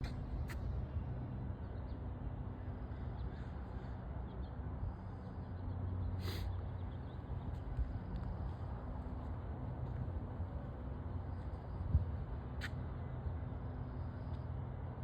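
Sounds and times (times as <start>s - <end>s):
low outdoor rumble: 0.0s - 15.0s
faint bird calls: 2.9s - 4.1s.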